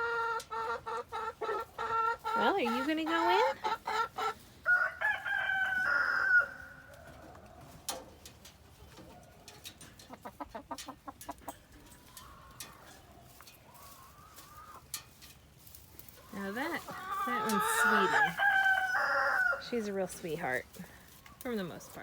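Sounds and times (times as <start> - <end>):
chicken calling: 0.0 - 7.8, 10.1 - 14.9, 16.2 - 20.0
chicken clucking: 0.0 - 20.5.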